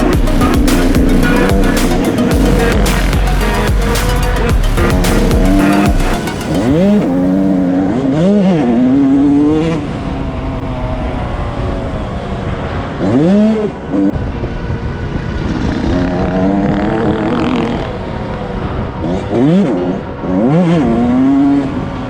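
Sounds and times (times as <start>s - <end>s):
dirt bike engines revving: 0.0s - 13.7s.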